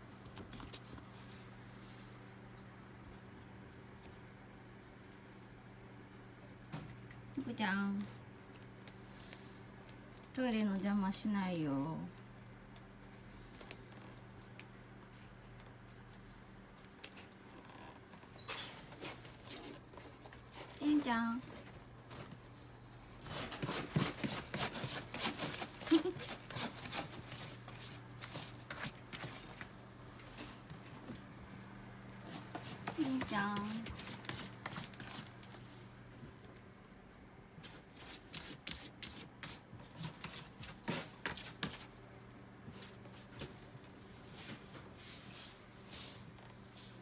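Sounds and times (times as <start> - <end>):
low steady hum: 0.0 - 47.0
faint rustles and clicks: 12.1 - 36.7
kitten scratching and tapping: 23.3 - 29.7, 32.3 - 35.4.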